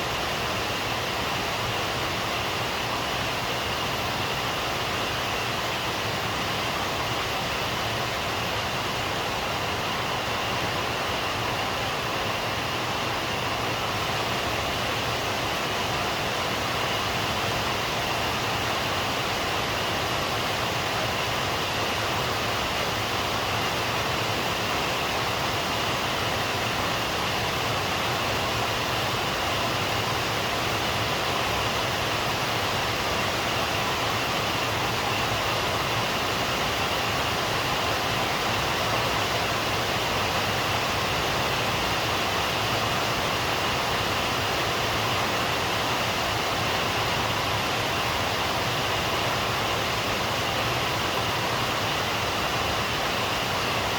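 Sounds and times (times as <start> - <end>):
steady rain: 0.0 - 53.9.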